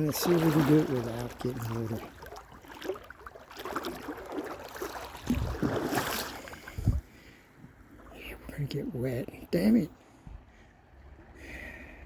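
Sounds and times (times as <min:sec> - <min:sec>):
boots splashing in water: 0:00.0 - 0:07.0.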